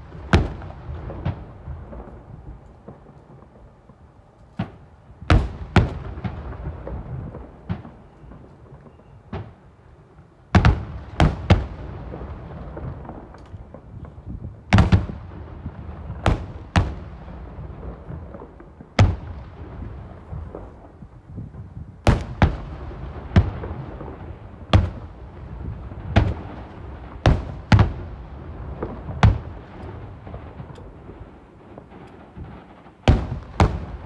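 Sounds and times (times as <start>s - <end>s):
fireworks booming: 0.0s - 34.0s.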